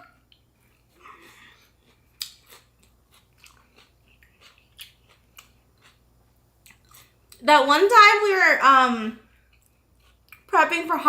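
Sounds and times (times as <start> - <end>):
crunchy chewing: 0.3 - 7.4, 9.4 - 10.5.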